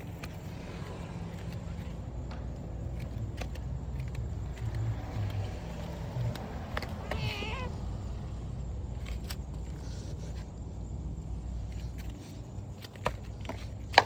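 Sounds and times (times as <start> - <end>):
steady low rumble: 0.0 - 12.8
cat meowing: 6.8 - 8.1.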